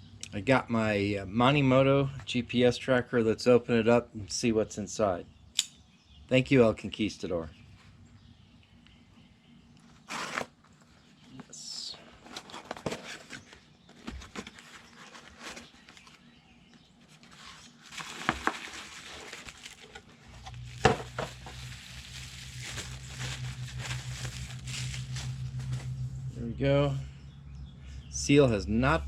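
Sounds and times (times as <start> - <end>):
steady low hum: 0.0 - 29.0
packaging crinkling and tearing: 17.1 - 26.0.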